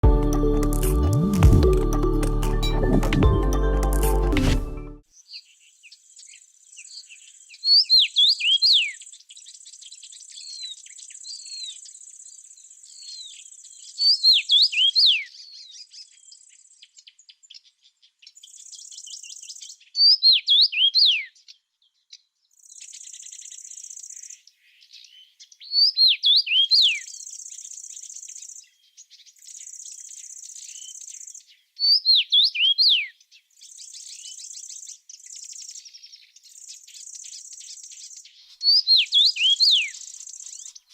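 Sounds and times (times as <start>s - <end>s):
songbird whistling: 7.7s - 9.0s, 14.0s - 15.3s, 20.0s - 21.3s, 25.7s - 27.1s, 31.8s - 33.1s, 38.6s - 40.7s.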